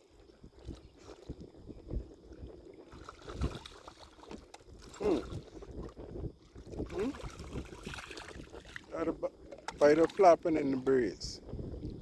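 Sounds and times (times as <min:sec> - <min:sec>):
shallow water sloshing: 0:00.0 - 0:12.0
short low voice-like sound: 0:04.9 - 0:05.4, 0:06.8 - 0:07.3.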